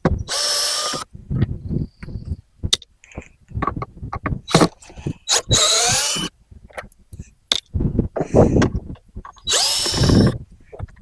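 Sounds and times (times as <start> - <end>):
power drill whining: 0.2 - 1.1, 4.5 - 6.3, 9.4 - 10.4.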